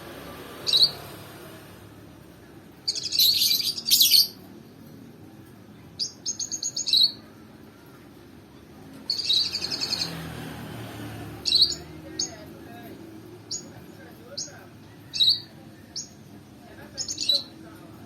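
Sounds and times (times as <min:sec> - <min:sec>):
lovebird chirping: 0:00.6 - 0:01.1, 0:02.9 - 0:04.4, 0:06.0 - 0:07.3, 0:09.1 - 0:10.2, 0:11.4 - 0:12.4, 0:14.3 - 0:16.2.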